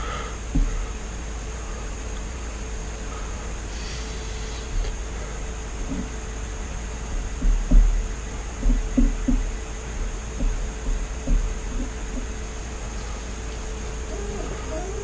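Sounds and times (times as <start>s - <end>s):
fan-like hum: 0.0s - 15.0s
soft low thumps and knocks: 0.5s - 0.8s, 7.2s - 12.4s.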